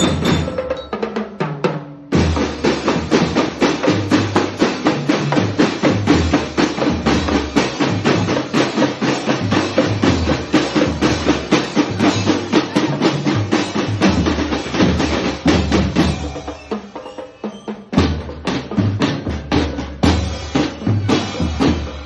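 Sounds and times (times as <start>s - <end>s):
drum stick strokes: 0.0s - 1.5s.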